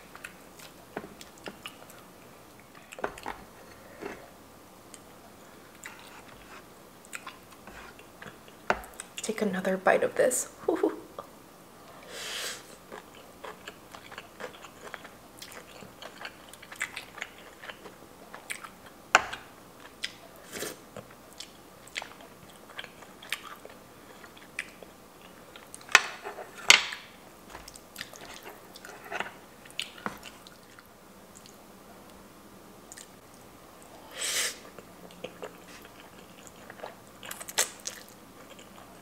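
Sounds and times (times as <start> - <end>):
wet chewing with crunches: 12.9 - 31.6, 34.7 - 39.0.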